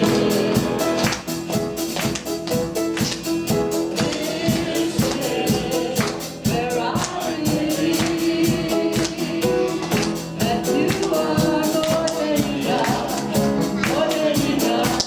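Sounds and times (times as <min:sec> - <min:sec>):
steady percussion: 0:00.0 - 0:15.0
worship band playing: 0:00.0 - 0:15.0
singing: 0:03.3 - 0:15.0.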